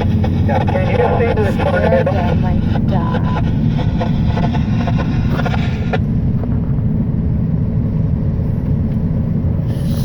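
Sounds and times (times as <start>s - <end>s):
car interior road rumble: 0.0s - 10.0s
brief hiss: 9.6s - 10.0s.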